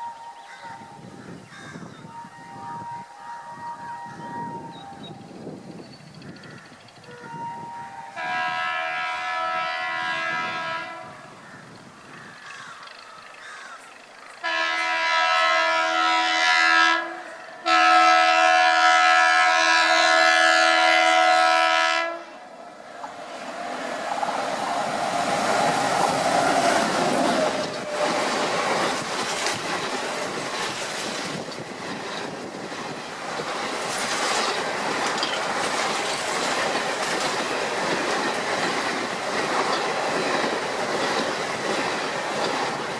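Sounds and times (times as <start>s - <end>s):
train horn blasts: 0.0s - 1.1s, 2.0s - 5.4s, 7.0s - 11.4s, 14.4s - 22.5s
train rumbling past: 0.0s - 42.9s
wheels clattering on rails: 12.0s - 14.5s, 23.0s - 42.9s.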